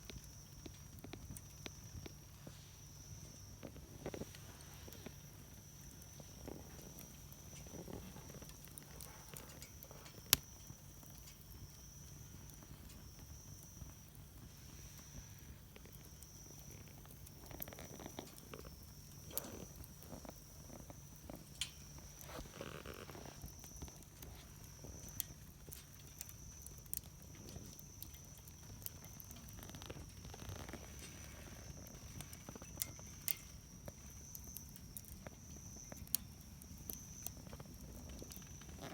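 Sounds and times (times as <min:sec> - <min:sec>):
fire popping: 0:00.0 - 0:38.9
wood fire crackling: 0:00.0 - 0:38.9.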